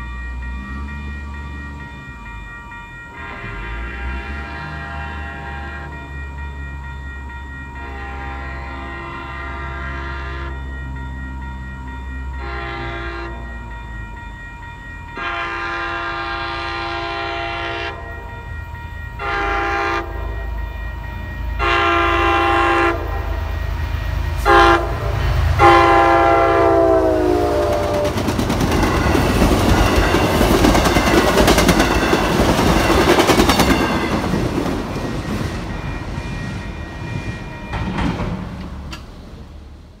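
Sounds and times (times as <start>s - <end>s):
passing train rushing: 0.0s - 40.0s
train horn blasts: 3.2s - 6.1s, 7.8s - 10.6s, 12.4s - 13.6s, 15.2s - 18.2s, 19.2s - 20.6s, 21.6s - 23.6s, 24.4s - 28.3s
wheels clicking over rail joints: 27.5s - 39.7s.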